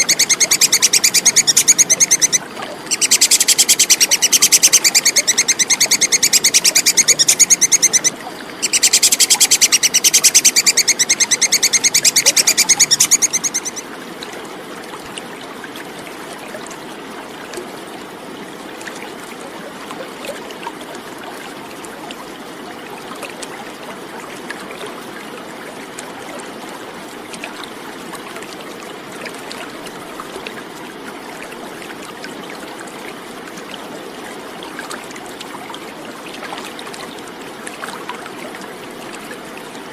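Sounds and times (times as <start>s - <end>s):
squirrel alarm chatter: 0.0s - 13.8s.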